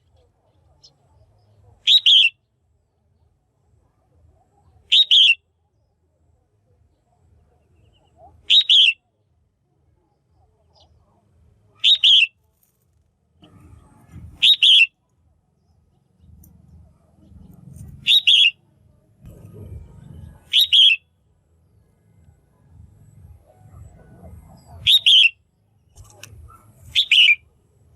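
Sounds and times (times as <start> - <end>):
bird calling: 1.8 - 2.4, 4.8 - 5.4, 7.8 - 9.0, 11.8 - 12.4, 14.4 - 15.0, 17.2 - 18.6, 20.4 - 21.0, 23.7 - 25.4, 26.0 - 27.4.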